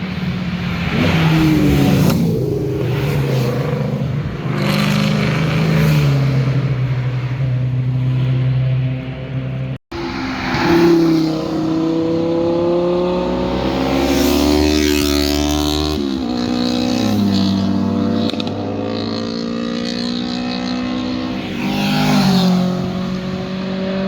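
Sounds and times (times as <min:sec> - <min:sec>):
performance car engines passing: 0:00.0 - 0:24.0
car accelerating: 0:10.0 - 0:24.0.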